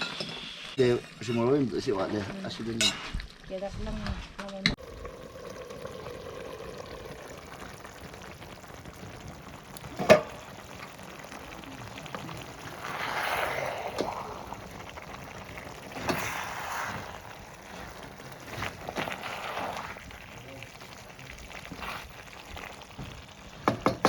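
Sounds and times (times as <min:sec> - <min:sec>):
pot simmering: 0:00.2 - 0:24.0
rushing liquid: 0:04.8 - 0:24.0.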